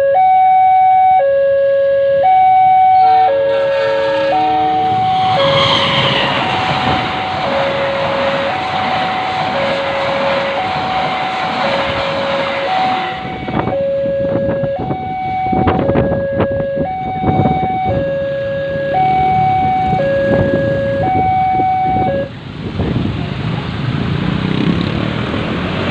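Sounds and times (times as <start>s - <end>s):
level crossing alarm two tones: 0.0s - 22.3s
fast train rushing past: 3.0s - 16.2s, 17.2s - 25.9s
train wheels knocking on rails: 5.6s - 13.4s.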